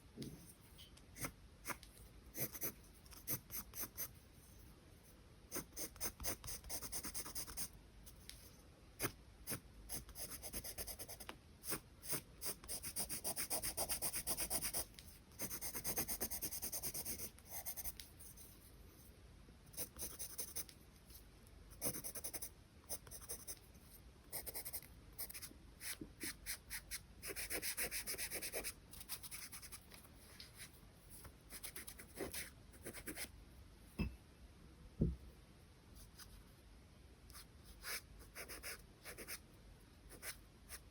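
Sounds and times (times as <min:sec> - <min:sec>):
pencil scratching on paper: 0:01.2 - 0:04.2, 0:09.0 - 0:18.5, 0:19.8 - 0:20.7, 0:21.8 - 0:23.6, 0:24.3 - 0:29.8, 0:37.4 - 0:39.4.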